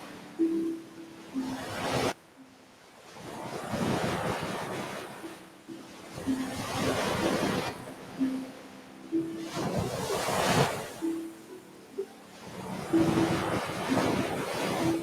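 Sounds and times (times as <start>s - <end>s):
ocean waves washing onto beach: 0.0s - 15.0s.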